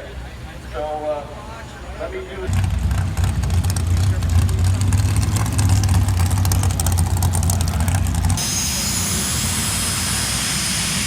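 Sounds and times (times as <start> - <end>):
car engine idling: 2.5 - 11.0
jet turbine engine whistling: 5.1 - 11.0.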